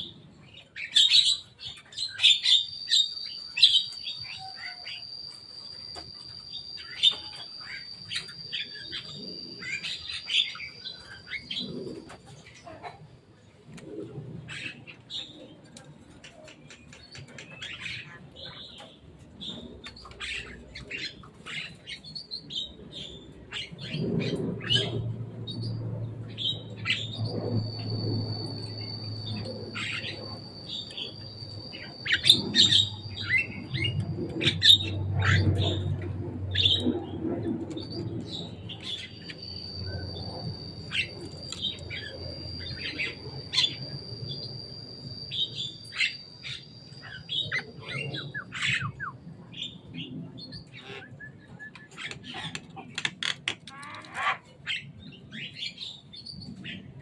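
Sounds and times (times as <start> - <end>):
low hum: 13.3 - 52.9
myna bird calling: 26.3 - 44.4, 50.5 - 55.8
steady high-pitched tone: 38.0 - 48.4.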